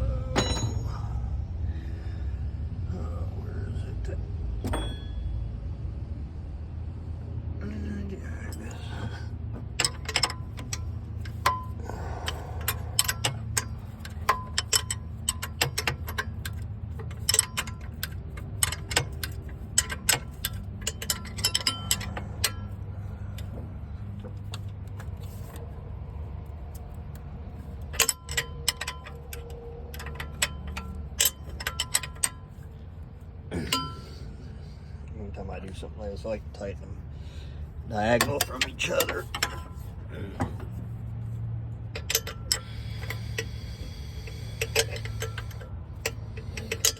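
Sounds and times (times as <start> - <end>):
steady low hum: 0.0 - 46.9
wrench metallic clicks: 9.6 - 25.8, 26.4 - 32.8, 33.6 - 34.2, 37.9 - 40.9, 41.8 - 46.9.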